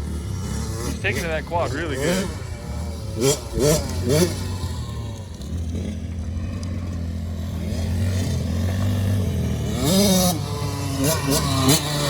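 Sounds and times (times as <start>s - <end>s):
small off-road engine revving: 0.0s - 12.0s.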